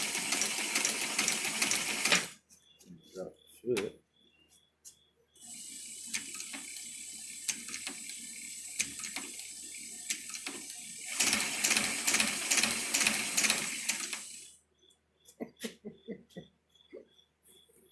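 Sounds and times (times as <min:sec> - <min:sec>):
sewing mechanism clicking: 0:00.0 - 0:02.4, 0:05.4 - 0:14.5.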